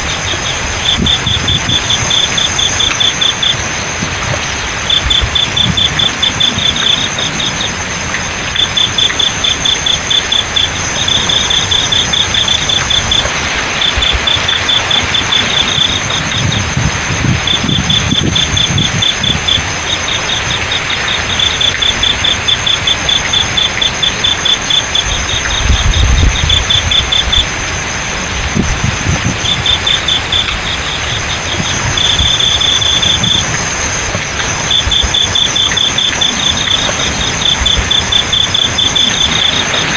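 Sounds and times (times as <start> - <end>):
crickets chirping: 0.0 - 39.9
flowing water hiss: 0.0 - 39.9
high insect trill: 0.0 - 39.9.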